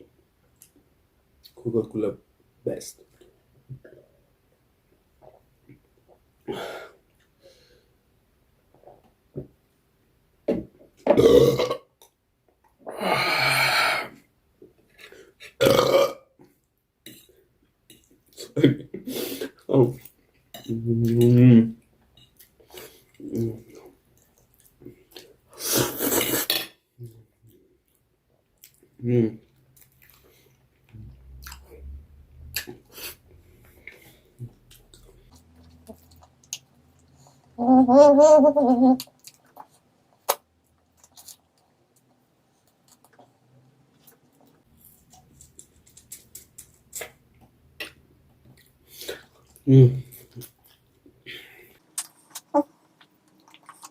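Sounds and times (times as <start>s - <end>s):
person belching loudly: 11.2s - 11.8s, 15.6s - 16.3s
small throaty sounds: 12.7s - 37.6s
person chewing food: 22.2s - 26.5s, 27.4s - 31.8s, 32.5s - 37.6s, 39.0s - 51.2s, 51.8s - 53.9s.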